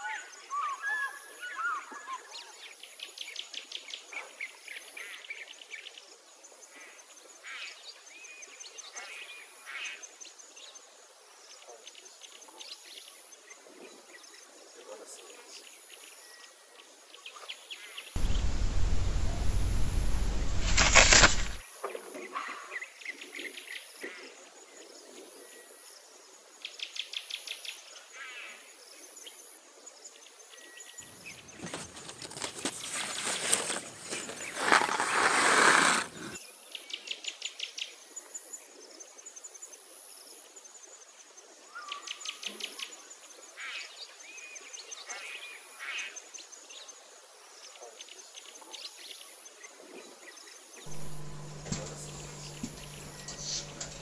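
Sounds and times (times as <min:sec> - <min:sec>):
loud rustling: 0:18.2 - 0:21.6, 0:31.6 - 0:36.4, 0:50.9 - 0:54.0.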